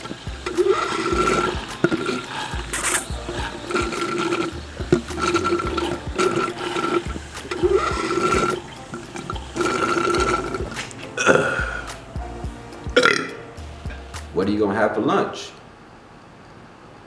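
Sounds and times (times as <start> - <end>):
person drinking noisily: 0.0 - 12.1, 12.9 - 14.0.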